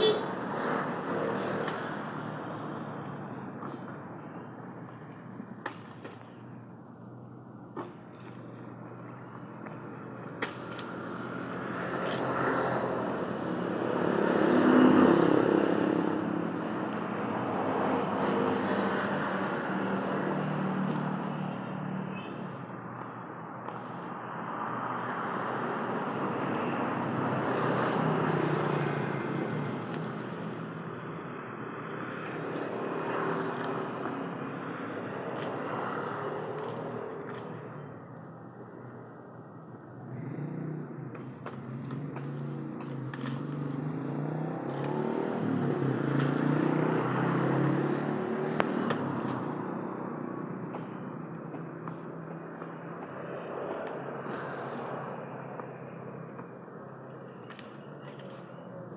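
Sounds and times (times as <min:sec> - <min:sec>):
vehicle engine passing by: 0:11.1 - 0:16.5, 0:40.0 - 0:56.4.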